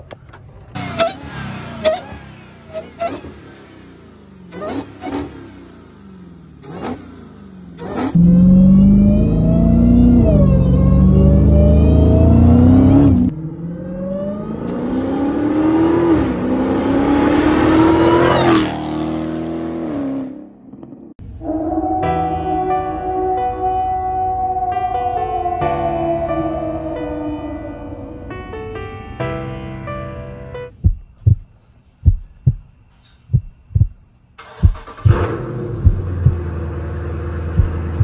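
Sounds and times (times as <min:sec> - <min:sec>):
car engine revving: 0:00.7 - 0:21.2, 0:33.4 - 0:38.0.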